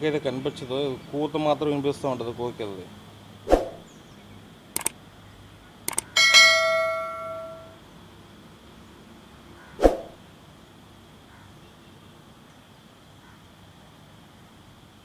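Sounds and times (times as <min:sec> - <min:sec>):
sharp clicks: 0:04.8 - 0:05.0, 0:05.9 - 0:06.2
metal bell ringing: 0:05.9 - 0:07.8.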